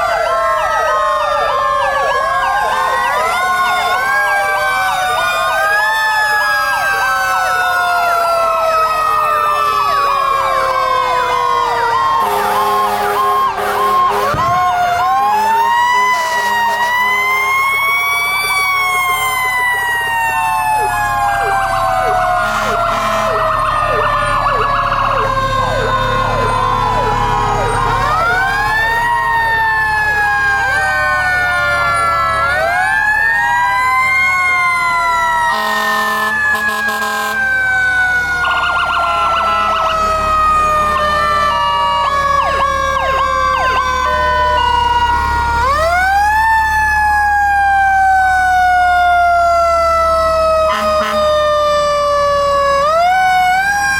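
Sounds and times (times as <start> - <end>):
electronic siren sweeps: 0.0 - 53.9
truck engines rumbling: 0.0 - 53.9
truck horn tones: 12.2 - 14.6, 22.4 - 23.6, 35.5 - 37.5, 50.7 - 51.3.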